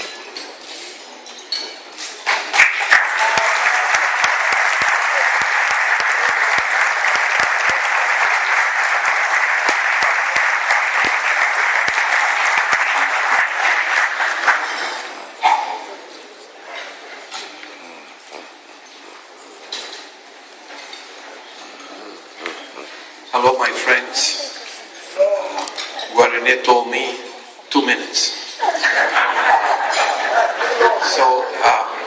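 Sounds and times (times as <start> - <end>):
audience applauding: 2.5 - 15.4.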